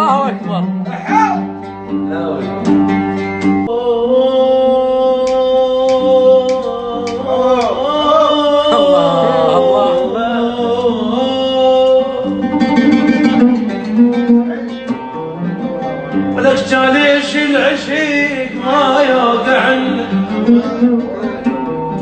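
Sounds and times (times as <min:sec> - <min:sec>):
oud plucked: 0:00.0 - 0:22.0
man singing wordless notes: 0:03.6 - 0:15.1, 0:16.4 - 0:22.0.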